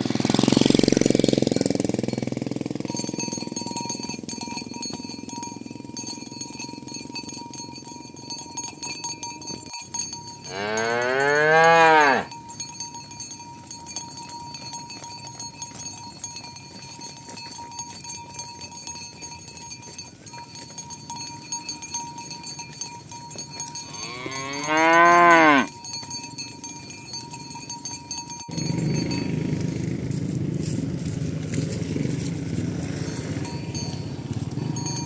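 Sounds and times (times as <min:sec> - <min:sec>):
steady ringing background: 0:00.1 - 0:35.0
cow mooing: 0:10.5 - 0:12.3, 0:23.8 - 0:25.7.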